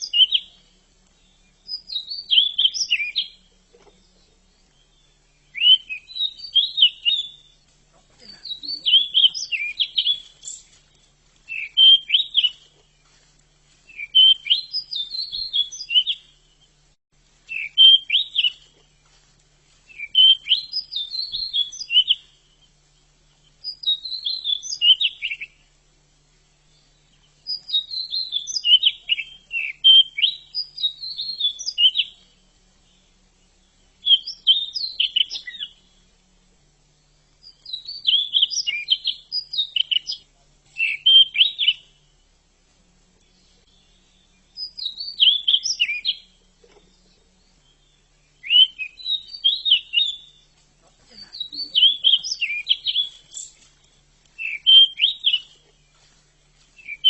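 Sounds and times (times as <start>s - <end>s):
bird warbling song: 0.0s - 57.0s.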